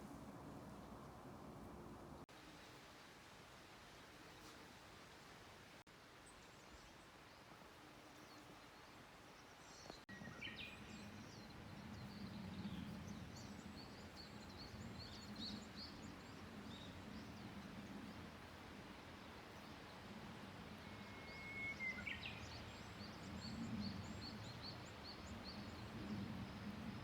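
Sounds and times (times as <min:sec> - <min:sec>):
low steady outdoor hum: 0:00.0 - 0:27.0
small birds twittering: 0:06.2 - 0:18.6.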